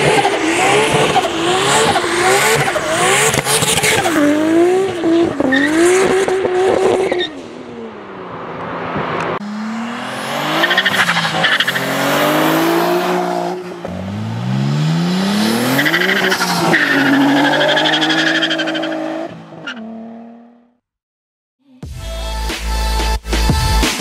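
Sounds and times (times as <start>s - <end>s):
car engine accelerating hard: 8.8s - 19.2s.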